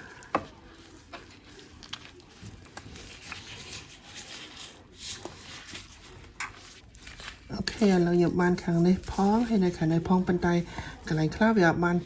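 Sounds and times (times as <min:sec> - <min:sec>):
soft clicks and wet squishes: 0:00.0 - 0:11.3.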